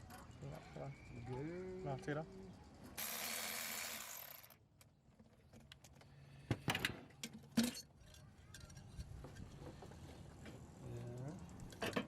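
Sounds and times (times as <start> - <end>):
parts clinking and rattling: 5.2 - 9.6.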